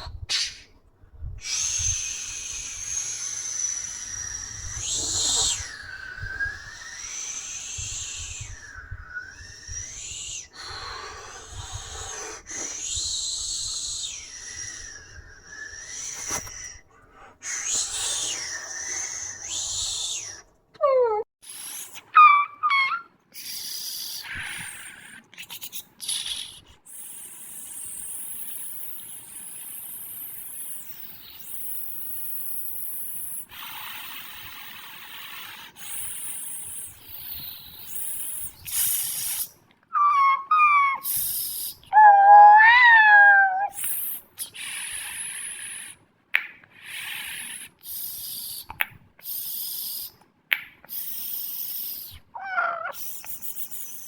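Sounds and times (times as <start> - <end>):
cartoon hissing bursts: 0.0 - 0.7, 1.4 - 8.6, 33.5 - 46.0
wavering animal-like calls: 22.0 - 23.1, 39.9 - 43.8, 52.3 - 53.1.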